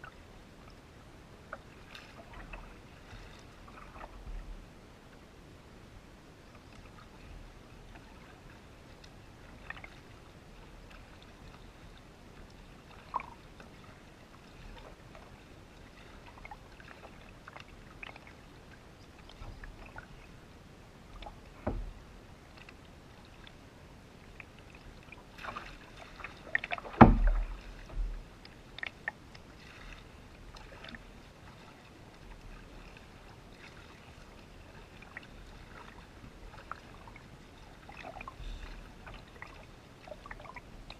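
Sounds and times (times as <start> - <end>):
paddle splashes: 0.0 - 5.2, 6.3 - 40.9
knocks against canoe hull: 21.6 - 21.9, 26.8 - 28.2
loud thump: 27.0 - 27.4.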